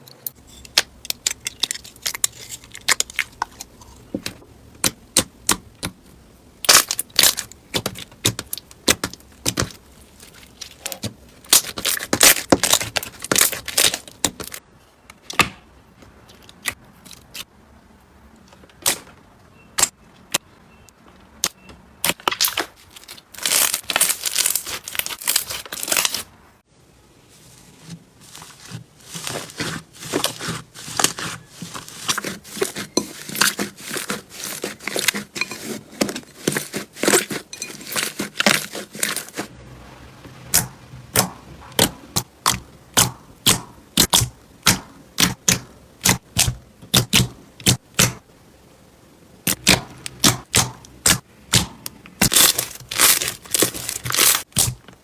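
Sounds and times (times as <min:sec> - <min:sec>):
slime crackling and popping: 0:04.8 - 0:14.6, 0:22.0 - 0:26.3, 0:40.5 - 0:48.2, 0:49.4 - 0:54.8.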